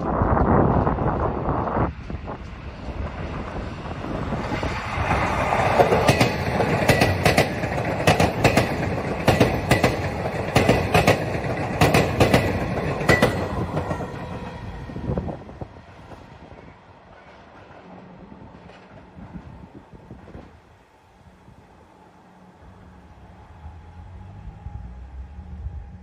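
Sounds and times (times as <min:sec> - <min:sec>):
wheels clacking over rail joints: 0:00.0 - 0:15.0
electric train passing: 0:00.0 - 0:26.0.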